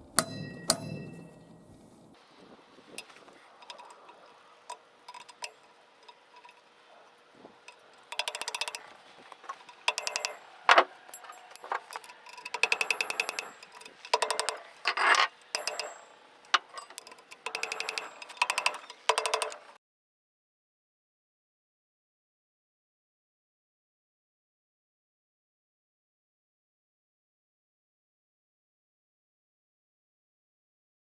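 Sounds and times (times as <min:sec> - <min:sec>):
metal on metal knocks: 0:00.2 - 0:01.4, 0:07.6 - 0:19.8
rapid metallic clicking: 0:02.9 - 0:19.8.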